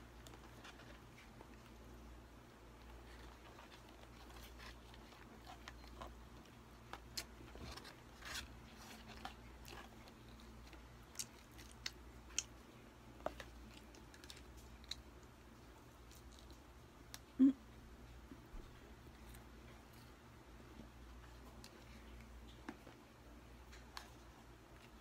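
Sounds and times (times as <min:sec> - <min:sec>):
faint low hum: 0:00.0 - 0:25.0
crunchy chewing: 0:02.7 - 0:16.7.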